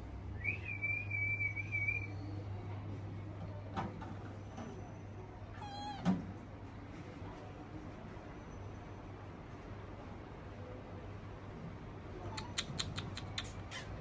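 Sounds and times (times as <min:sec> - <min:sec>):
kittens mewing: 0:05.6 - 0:06.1, 0:12.2 - 0:14.0.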